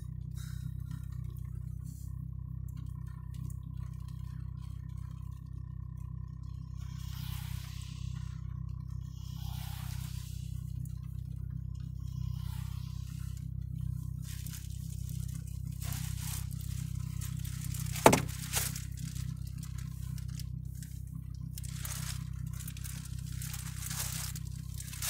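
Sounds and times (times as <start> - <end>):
car driving low rumble: 0.0 - 25.0
hissing swooshes: 6.9 - 8.2, 9.2 - 10.6.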